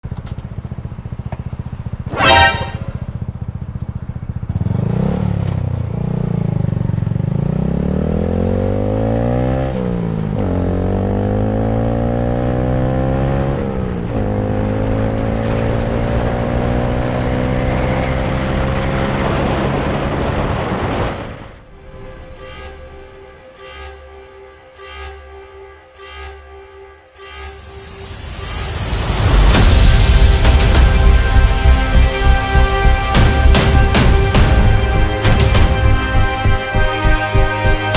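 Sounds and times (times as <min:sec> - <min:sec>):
motorcycle engine revving: 0:00.1 - 0:22.9
horn beep: 0:02.1 - 0:03.2, 0:21.7 - 0:28.9.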